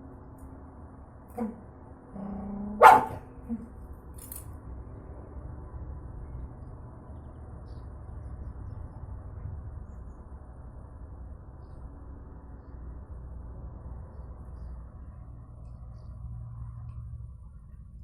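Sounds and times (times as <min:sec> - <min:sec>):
dog barking: 0:01.4 - 0:01.6, 0:02.8 - 0:03.2.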